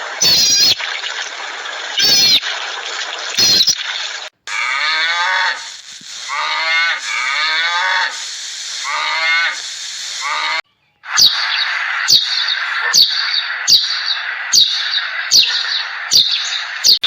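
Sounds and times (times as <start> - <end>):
short high-pitched animal calls: 0.2 - 0.8, 2.0 - 2.4, 3.4 - 3.8, 4.5 - 17.0
cow mooing: 4.5 - 5.6, 6.3 - 8.1.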